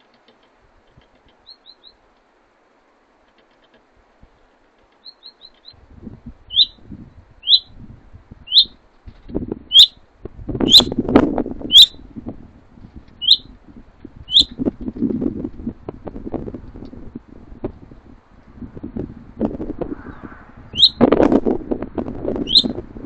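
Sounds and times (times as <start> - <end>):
songbird chirping: 1.2 - 2.2, 4.7 - 5.8, 6.5 - 6.8, 7.4 - 7.8, 8.4 - 8.8, 9.7 - 10.0, 10.7 - 10.9, 11.7 - 12.0, 13.2 - 13.5, 14.3 - 14.6, 20.1 - 21.0, 22.4 - 22.8.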